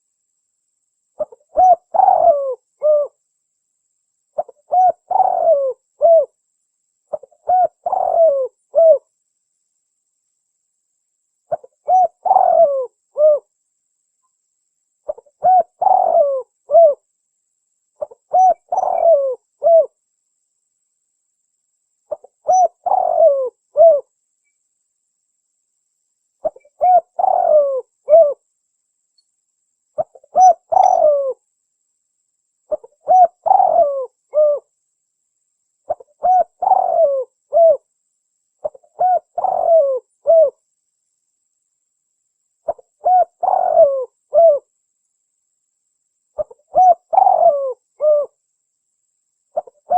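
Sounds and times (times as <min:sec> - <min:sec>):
dove cooing: 0:01.2 - 0:03.2, 0:04.4 - 0:06.4, 0:07.1 - 0:09.0, 0:11.5 - 0:13.5, 0:15.1 - 0:17.0, 0:18.0 - 0:20.0, 0:22.1 - 0:24.1, 0:26.4 - 0:28.4, 0:30.0 - 0:31.4, 0:32.7 - 0:34.7, 0:35.9 - 0:37.9, 0:38.6 - 0:40.6, 0:42.7 - 0:44.7, 0:46.4 - 0:48.4, 0:49.6 - 0:49.9.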